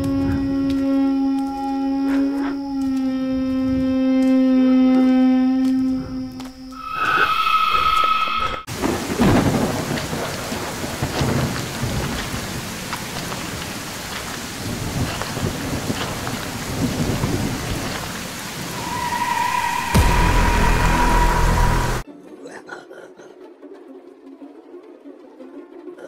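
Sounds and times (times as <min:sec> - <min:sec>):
rolling thunder: 0:08.7 - 0:22.0
steady rain: 0:08.7 - 0:22.0
low hum: 0:18.5 - 0:22.0
high held tone: 0:18.7 - 0:22.0.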